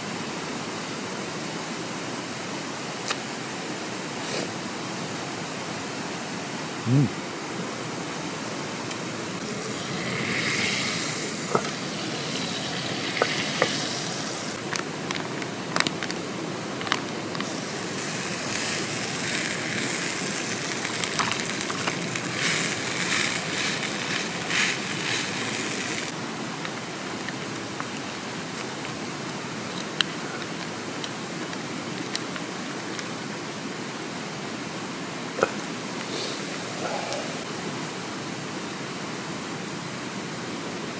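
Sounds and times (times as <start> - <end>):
mountain stream rushing: 0.0 - 40.9
campfire sizzling and popping: 8.9 - 33.4.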